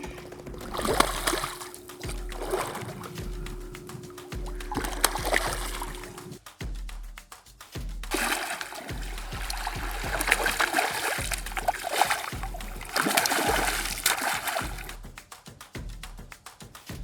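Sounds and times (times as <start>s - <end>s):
water splashing: 0.0s - 6.4s, 8.1s - 15.0s
music with bass beat: 0.0s - 17.0s.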